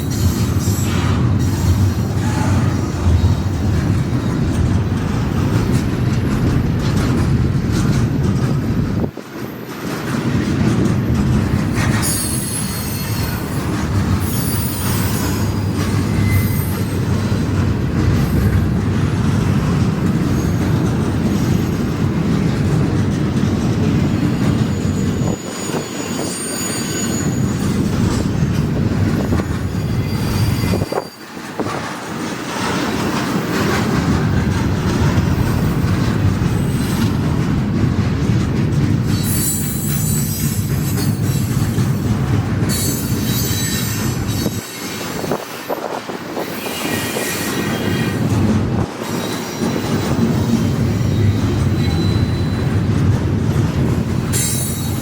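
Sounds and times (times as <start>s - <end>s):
train wheels rumbling on rail: 0.0s - 55.0s
high-pitched wheel squeal: 12.0s - 13.6s, 14.2s - 17.0s, 24.7s - 27.8s, 29.7s - 31.3s, 42.7s - 45.3s, 46.4s - 48.2s, 51.0s - 52.8s.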